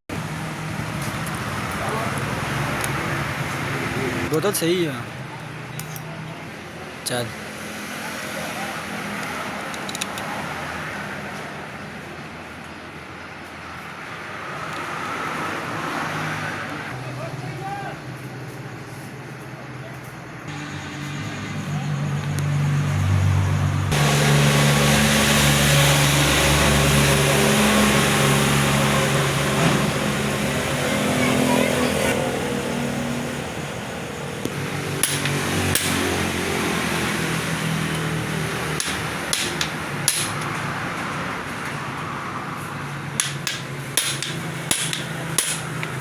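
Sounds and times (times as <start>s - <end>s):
sharp knocks: 35.0s - 36.2s, 38.8s - 40.5s, 43.2s - 46.0s.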